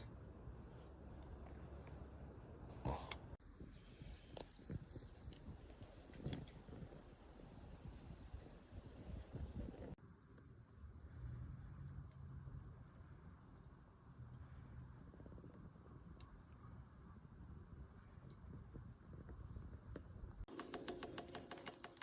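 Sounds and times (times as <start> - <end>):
faint crackles: 0.0 - 10.0.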